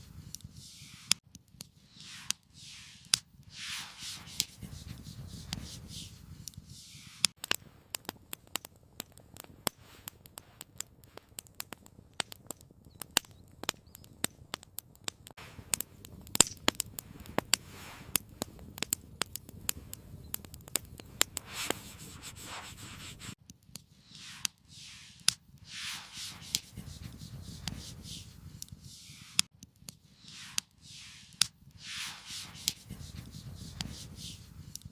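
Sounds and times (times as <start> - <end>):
wood campfire crackling: 0.0 - 34.9
short hissing rushes: 0.6 - 1.2, 1.9 - 7.4, 21.3 - 23.4, 24.0 - 29.5, 30.2 - 34.6.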